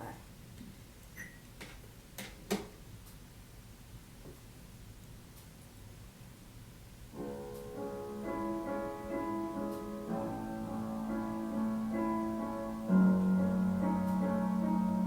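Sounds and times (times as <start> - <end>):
piano chords: 7.2 - 15.0.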